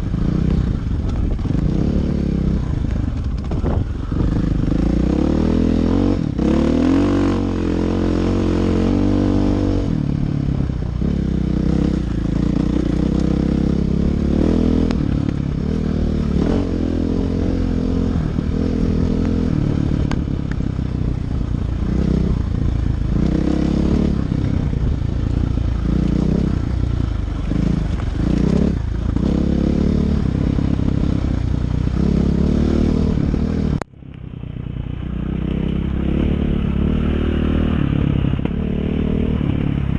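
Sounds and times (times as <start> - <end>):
dirt bike engine revving: 3.5 - 20.3, 21.8 - 33.8, 35.0 - 39.9.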